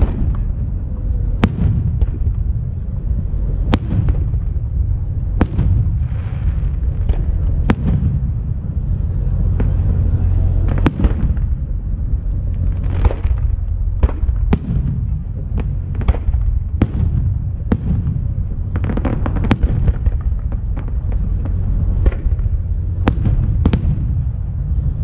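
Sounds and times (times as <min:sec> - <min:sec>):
low rumble: 0:00.0 - 0:25.0.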